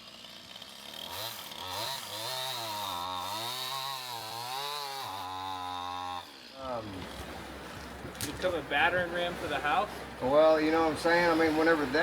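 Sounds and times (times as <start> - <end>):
chainsaw running at high revs: 0.0 - 7.3.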